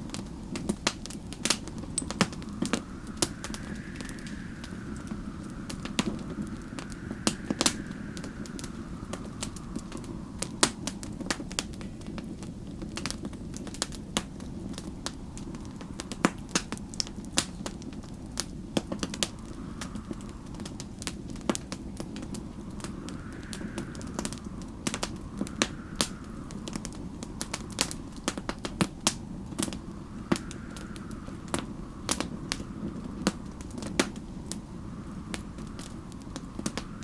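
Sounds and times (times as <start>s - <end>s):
whistling wind: 0.0s - 37.0s
wood fire crackling and popping: 0.0s - 37.0s.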